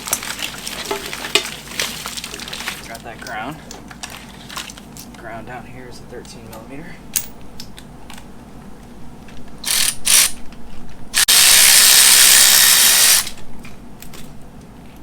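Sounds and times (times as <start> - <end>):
cordless power tool running: 11.2 - 13.4.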